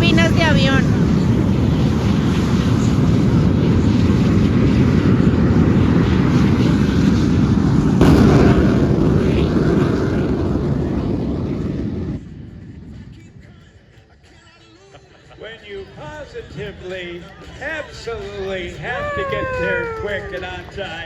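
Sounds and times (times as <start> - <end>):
jet engines roaring: 0.0 - 13.4
sudden bang: 8.0 - 12.2.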